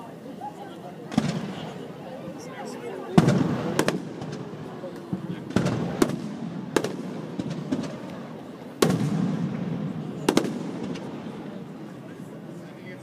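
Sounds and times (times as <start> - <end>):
fireworks bangs with rumbling echo: 1.1 - 2.0, 3.1 - 12.0.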